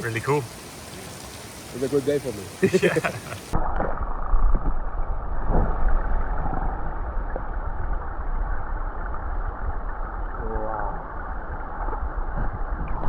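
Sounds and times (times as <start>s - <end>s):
mountain stream rushing: 0.0s - 3.6s.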